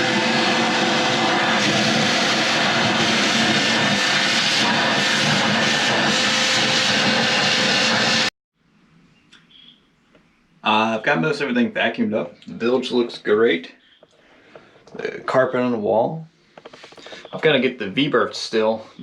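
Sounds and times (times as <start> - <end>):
shop vacuum running: 0.0 - 8.3.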